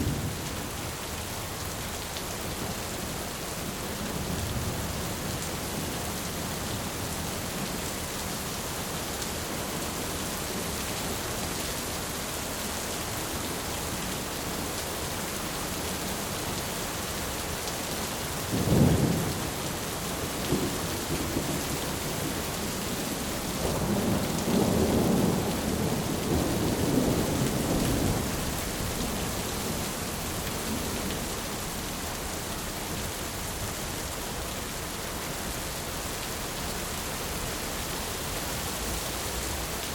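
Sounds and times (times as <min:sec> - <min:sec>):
steady rain: 0:00.0 - 0:39.9
rolling rumble of thunder: 0:18.5 - 0:19.6, 0:20.4 - 0:31.2.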